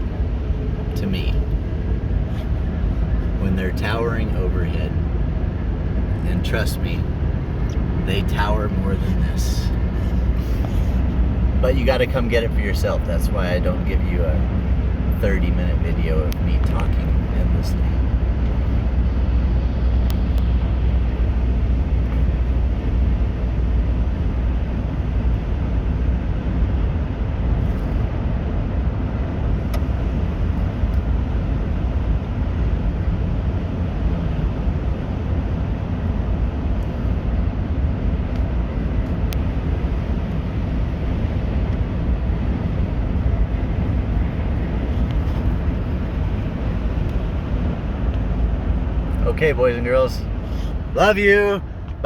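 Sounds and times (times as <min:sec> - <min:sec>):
car road and engine noise: 0:00.0 - 0:52.0.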